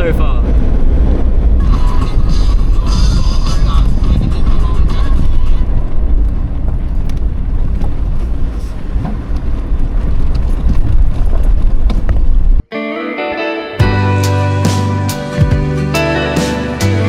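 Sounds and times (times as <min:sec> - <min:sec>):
engine and tyres rumbling: 0:00.0 - 0:12.7.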